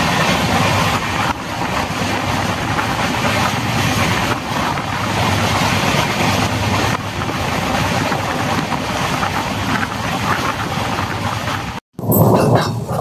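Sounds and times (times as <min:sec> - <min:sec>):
train wind and rail noise: 0:00.0 - 0:13.0
low rumble: 0:12.0 - 0:13.0.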